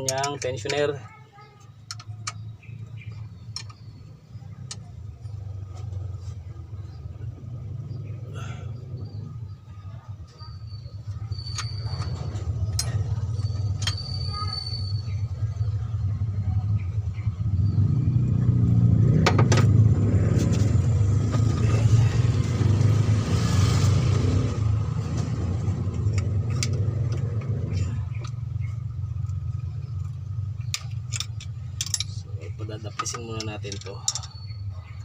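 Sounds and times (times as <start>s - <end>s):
sharp metallic clicks: 0.0s - 0.8s, 1.7s - 4.9s, 11.3s - 15.0s
vehicle rumble passing: 1.9s - 35.0s.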